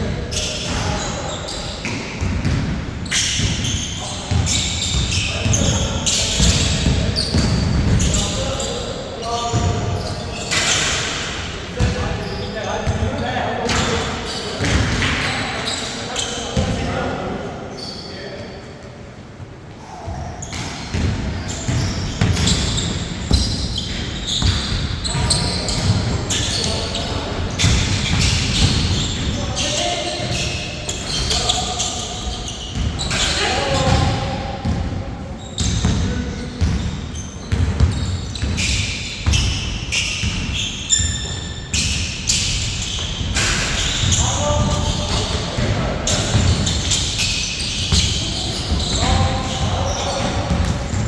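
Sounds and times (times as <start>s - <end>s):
sneakers squeaking: 0.0s - 51.0s
basketball bouncing on court: 1.8s - 8.3s, 9.5s - 10.9s, 14.6s - 15.6s, 20.1s - 31.6s, 32.2s - 51.0s
basketball bouncing on hard court: 4.3s - 8.2s, 20.4s - 26.5s, 37.5s - 39.6s, 47.8s - 51.0s.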